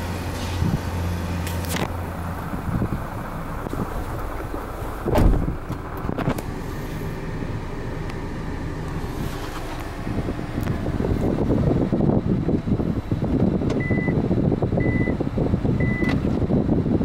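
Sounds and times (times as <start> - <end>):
car engine idling: 0.0 - 17.0
dull thump: 5.0 - 6.4.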